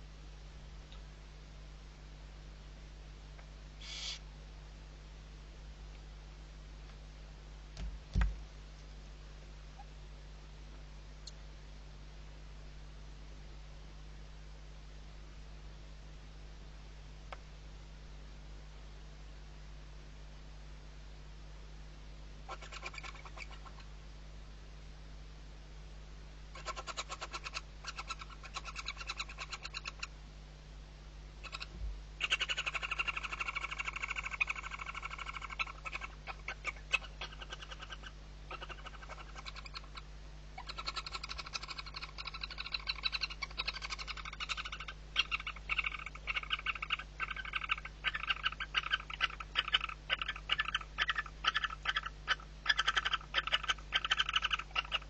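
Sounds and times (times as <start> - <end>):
low electrical hum: 0.0 - 55.0
owl chick chittering calls: 3.8 - 4.2, 22.5 - 23.9, 26.5 - 30.2, 31.4 - 55.0.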